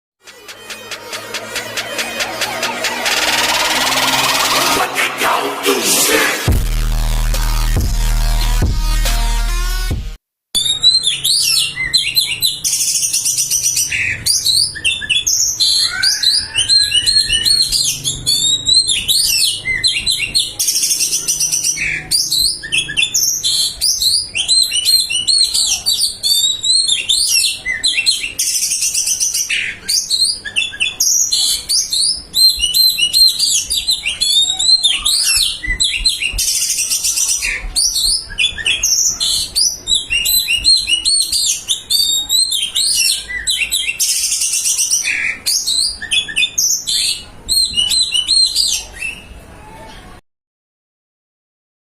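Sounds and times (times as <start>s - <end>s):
harsh buzzy bird calls: 10.6s - 46.3s
bird singing varied song: 10.6s - 49.4s.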